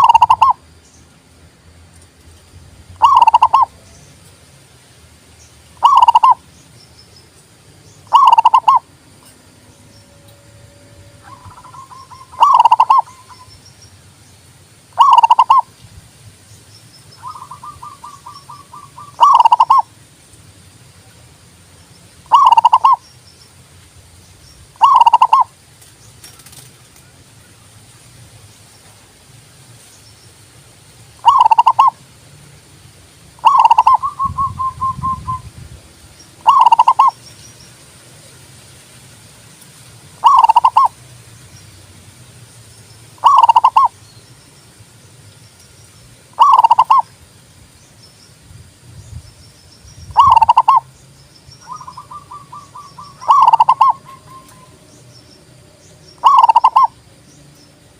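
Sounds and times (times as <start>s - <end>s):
dove cooing: 0.0s - 0.6s, 3.0s - 3.8s, 5.8s - 6.4s, 8.1s - 8.9s, 11.1s - 13.5s, 15.0s - 15.7s, 17.2s - 19.9s, 22.3s - 23.0s, 24.8s - 25.5s, 31.2s - 32.0s, 33.4s - 35.4s, 36.4s - 37.2s, 40.2s - 41.0s, 43.2s - 43.9s, 46.4s - 47.1s, 50.2s - 50.8s, 51.6s - 54.8s, 56.2s - 57.0s
bird rolling trill: 8.1s - 8.8s, 11.2s - 13.1s, 40.2s - 40.9s, 43.2s - 43.9s, 53.3s - 54.0s, 56.2s - 56.9s.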